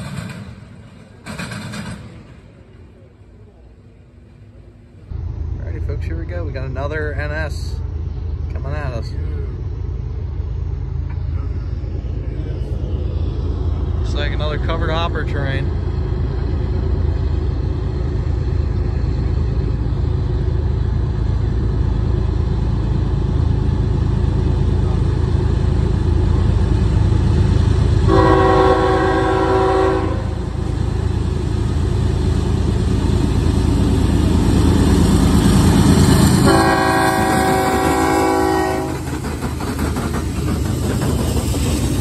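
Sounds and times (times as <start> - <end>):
diesel locomotive engine rumble: 0.0 - 42.0
locomotive air horn blasts: 28.1 - 30.4, 36.4 - 39.0.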